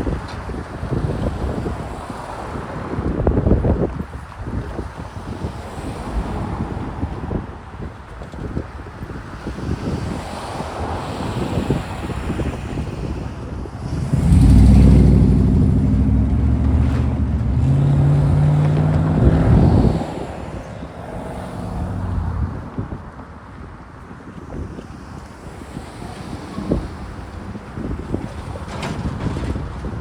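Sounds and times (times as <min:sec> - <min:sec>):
wind on microphone: 0:00.0 - 0:30.0
diesel engine drone: 0:13.8 - 0:22.6
train rumbling: 0:13.8 - 0:22.6.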